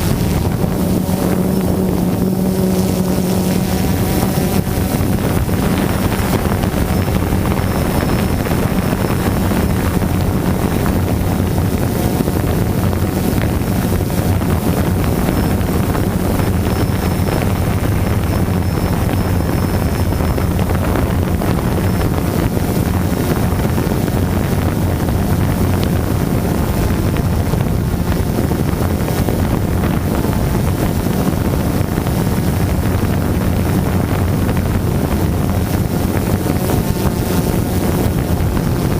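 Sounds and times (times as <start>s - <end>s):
drone propellers buzzing: 0.0s - 38.9s
wind over microphone: 0.0s - 38.9s.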